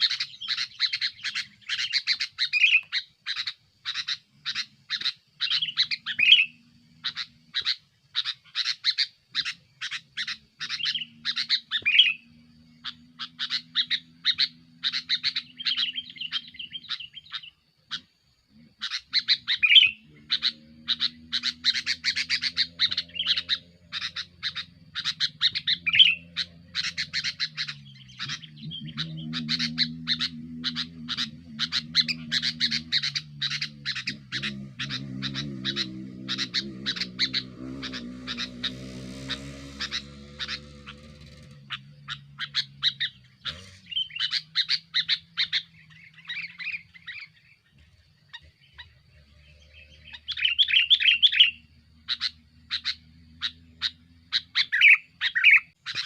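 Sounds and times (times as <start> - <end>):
bulbul chattering chirps: 0.0 - 56.0
steady low hum: 9.6 - 55.2.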